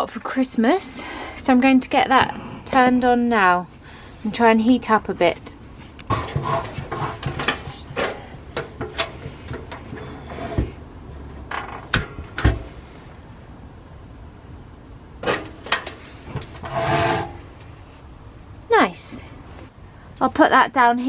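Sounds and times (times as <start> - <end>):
sharp clicks and knocks: 5.8 - 12.7, 15.2 - 17.7.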